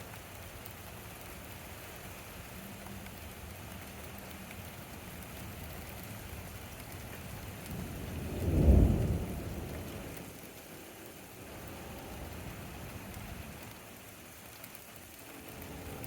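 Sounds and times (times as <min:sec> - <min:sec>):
rain falling: 0:00.0 - 0:16.0
thunder rumbling: 0:07.6 - 0:10.4.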